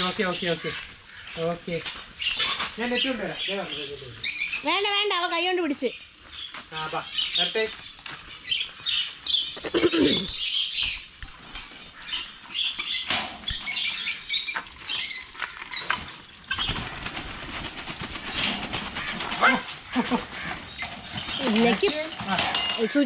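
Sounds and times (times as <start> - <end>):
birds chirping: 0.0 - 23.0
birds flapping wings: 16.0 - 23.0.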